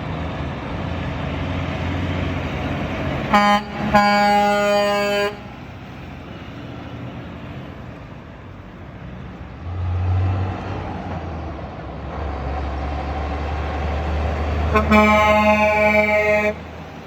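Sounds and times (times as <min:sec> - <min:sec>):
passing truck rumble: 0:00.0 - 0:17.0
truck air horn: 0:03.3 - 0:05.6, 0:14.6 - 0:16.7.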